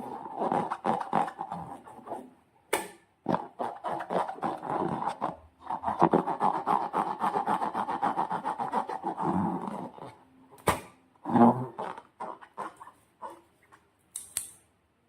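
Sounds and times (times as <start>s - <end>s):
sharp snap: 14.2s - 14.6s.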